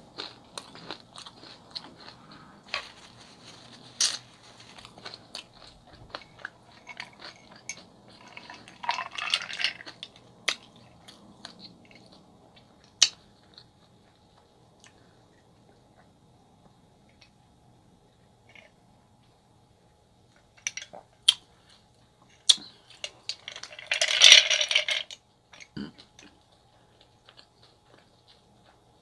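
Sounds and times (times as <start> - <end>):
chewing and mouth sounds: 0.1 - 9.1, 25.6 - 29.0
straw stirring ice in glass: 2.7 - 10.2, 23.0 - 25.2.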